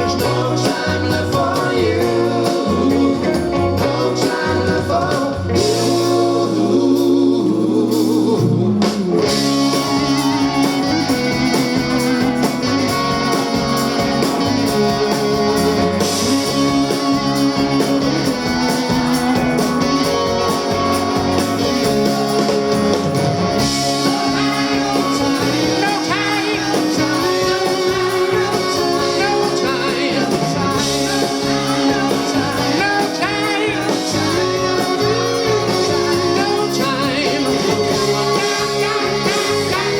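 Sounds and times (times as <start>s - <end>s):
electric guitar: 0.0s - 39.9s
live rock band playing: 0.0s - 39.9s.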